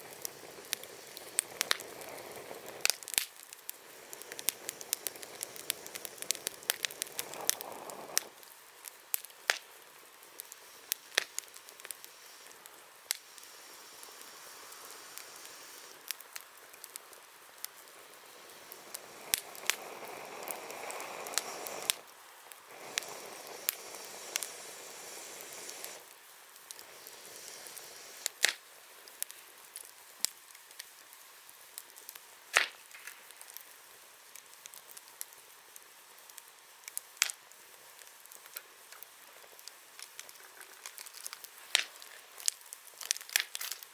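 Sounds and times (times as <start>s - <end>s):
soft hissing rush: 0.0s - 32.4s
campfire crackling and popping: 0.0s - 43.9s.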